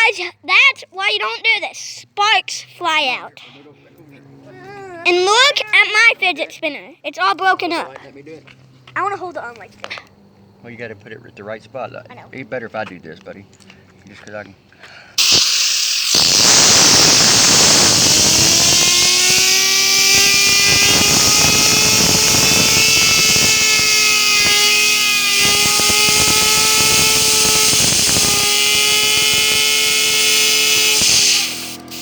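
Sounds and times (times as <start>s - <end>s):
compressed air hissing: 15.2s - 32.0s
fidget spinner whining: 15.2s - 32.0s.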